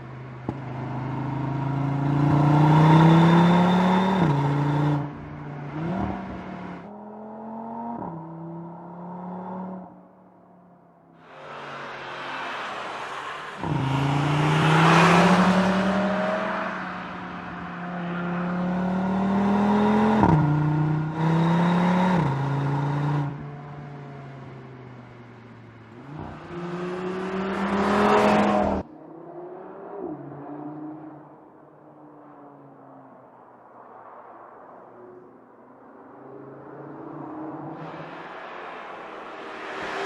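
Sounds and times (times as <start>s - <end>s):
car engine accelerating hard: 0.0s - 6.8s, 11.2s - 23.5s.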